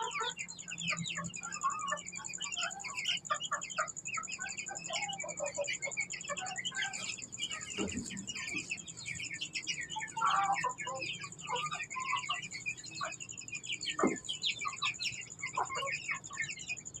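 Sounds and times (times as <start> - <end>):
louder lower chick calls: 0.0 - 16.5
chicks peeping: 0.0 - 17.0.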